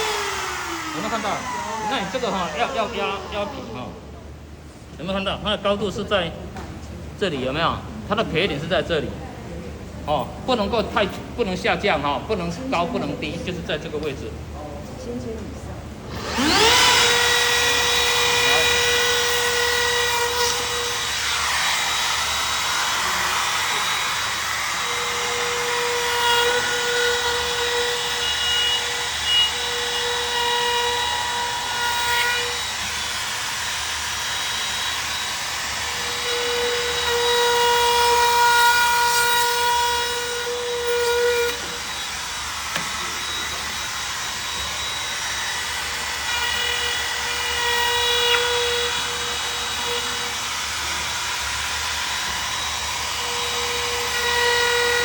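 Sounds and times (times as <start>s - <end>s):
edge trimmer cutting wood: 0.0s - 4.0s, 16.1s - 55.0s.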